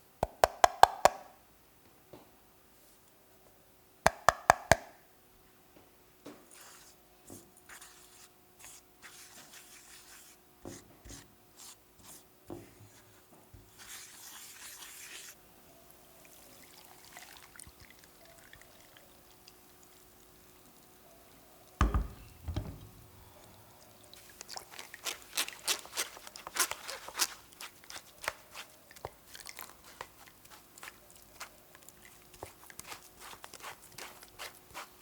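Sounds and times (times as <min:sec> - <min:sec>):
faint steady hum: 0:15.4 - 0:25.0.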